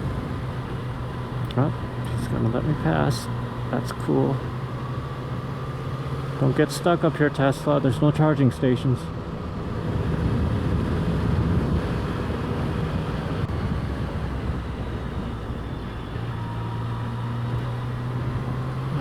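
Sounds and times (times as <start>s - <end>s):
motorcycle engine running: 9.0s - 19.0s
wind noise on microphone: 9.5s - 15.8s.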